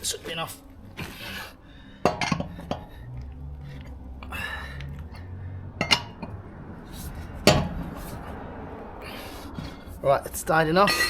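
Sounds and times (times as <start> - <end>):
low rumble: 0.0 - 10.1
wheel wrench clanking on nuts: 2.0 - 3.0, 5.8 - 6.4, 7.4 - 8.0.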